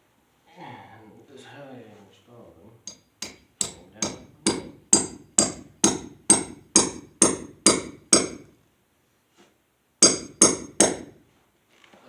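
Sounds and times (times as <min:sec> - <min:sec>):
hammer striking metal anchor: 0:02.9 - 0:08.5, 0:10.0 - 0:11.2.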